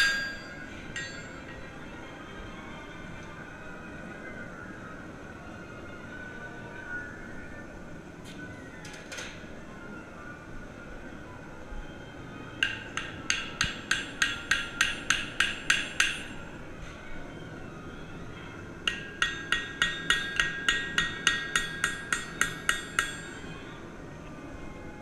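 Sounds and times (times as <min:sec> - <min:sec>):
hammer striking steel: 0:00.0 - 0:01.6, 0:12.6 - 0:16.4, 0:18.9 - 0:23.4.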